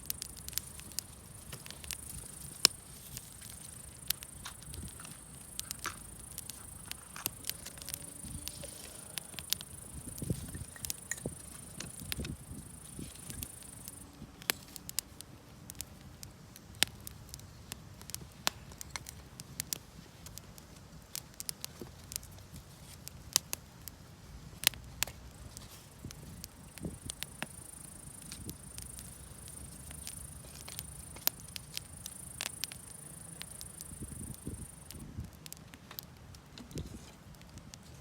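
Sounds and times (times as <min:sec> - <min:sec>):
high insect trill: 0:00.0 - 0:14.0, 0:26.0 - 0:35.0
campfire crackling and popping: 0:00.0 - 0:38.0.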